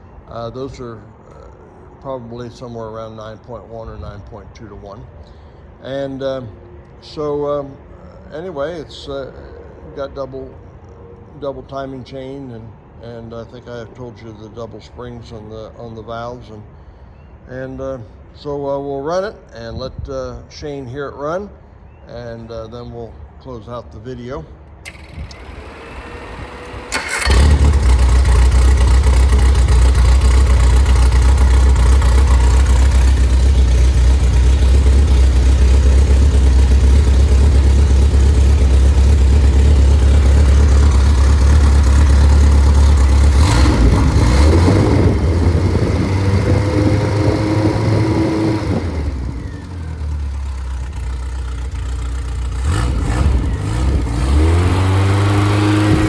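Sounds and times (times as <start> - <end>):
car engine starting and running: 24.8 - 56.0.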